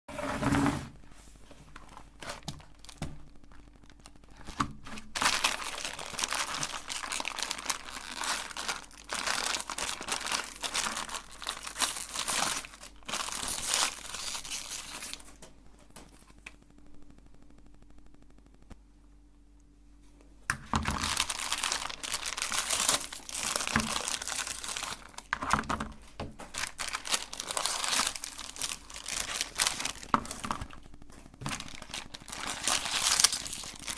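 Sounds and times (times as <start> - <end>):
meat grinder crunching sweets: 1.9 - 15.4, 20.6 - 33.9.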